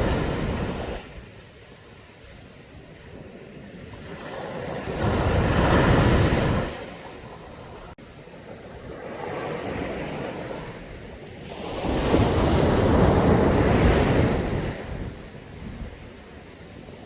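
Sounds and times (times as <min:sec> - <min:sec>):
sea waves breaking on shore: 0:00.0 - 0:17.0.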